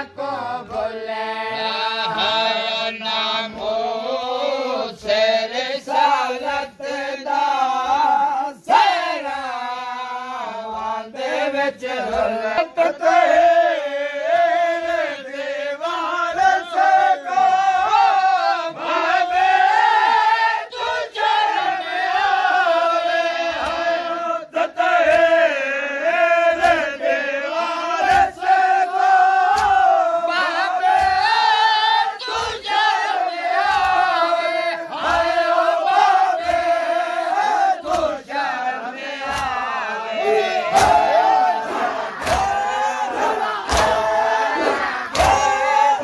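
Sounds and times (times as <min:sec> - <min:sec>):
men chanting held notes: 0:00.0 - 0:46.0
hands beating chests: 0:23.4 - 0:24.0, 0:26.5 - 0:27.0, 0:28.0 - 0:46.0.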